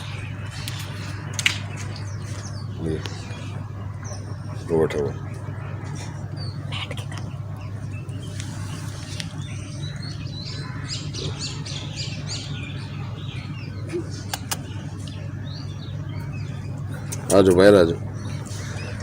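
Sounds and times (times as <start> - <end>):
small birds twittering: 0.0 - 19.0
steady low hum: 0.0 - 19.0
sharp clicks: 14.3 - 15.2.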